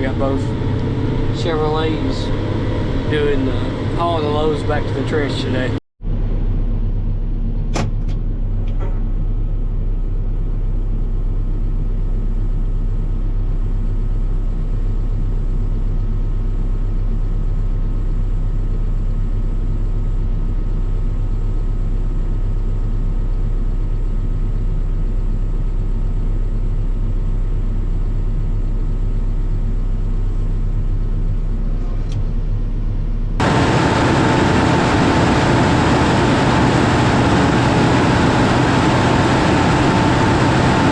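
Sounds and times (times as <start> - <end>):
harsh machine noise: 0.0 - 5.8, 33.4 - 40.9
truck engine running: 0.0 - 40.9.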